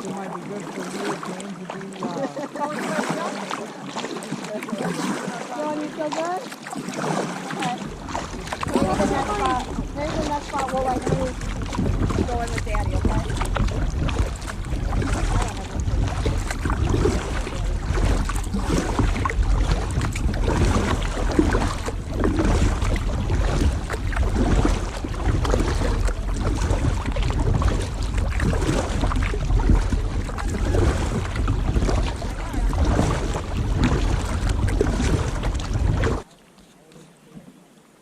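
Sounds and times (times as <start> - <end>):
water splashing around kayak hull: 0.0 - 38.0
wind rumbling on microphone: 7.2 - 36.3.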